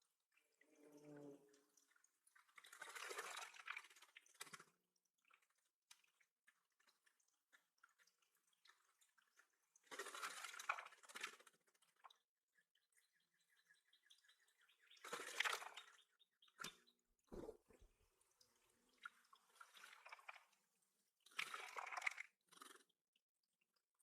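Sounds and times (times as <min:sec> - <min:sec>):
faint drips and ticks: 0:00.0 - 0:24.0
water splashing: 0:16.6 - 0:20.6, 0:21.2 - 0:22.9.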